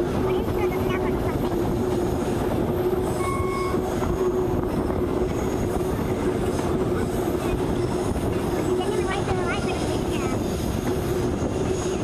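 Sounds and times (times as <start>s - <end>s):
train wheels rumbling on rails: 0.0s - 12.0s
wind: 0.0s - 12.0s
short high wheel squeal: 3.1s - 4.3s.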